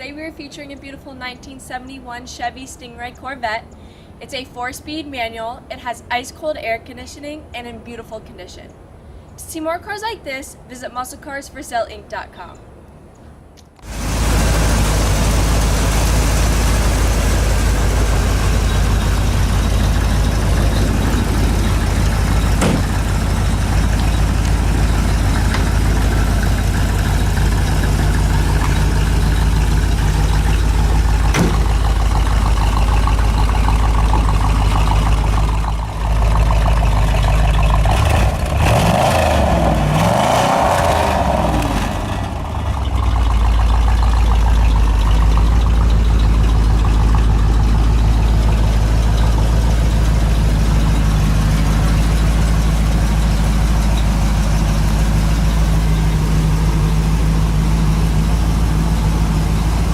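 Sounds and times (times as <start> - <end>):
car engine idling: 13.7 - 59.9
engine revving: 13.8 - 59.9.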